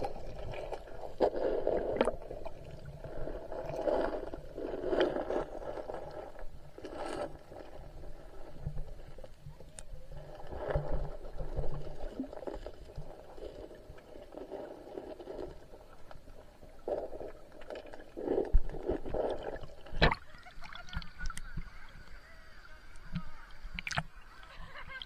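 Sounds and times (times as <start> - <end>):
water sloshing in a stream: 0.0 - 25.0.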